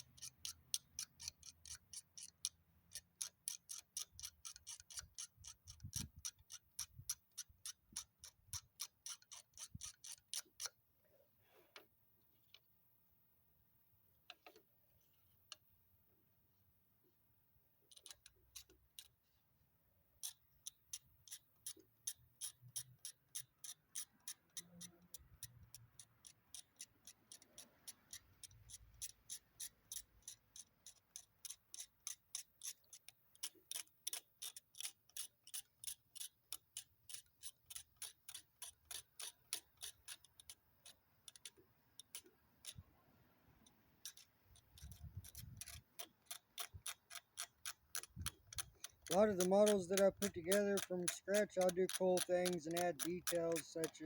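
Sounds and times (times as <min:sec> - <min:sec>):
steady ticking: 0:20.2 - 0:54.0.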